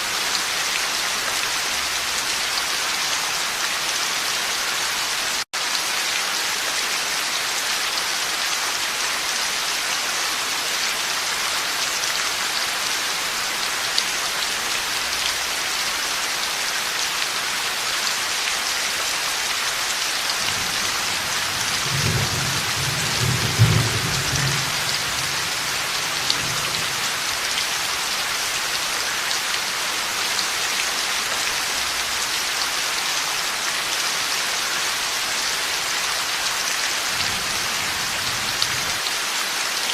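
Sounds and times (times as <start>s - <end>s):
heavy rain falling: 0.0s - 39.9s
low rumble of thunder: 20.4s - 27.2s.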